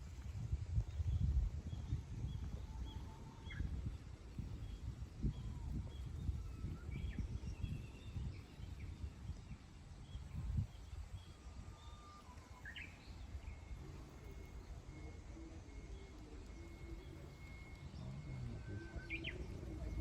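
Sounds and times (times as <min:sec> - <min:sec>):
wild birds chirping and calling: 0:14.4 - 0:20.0.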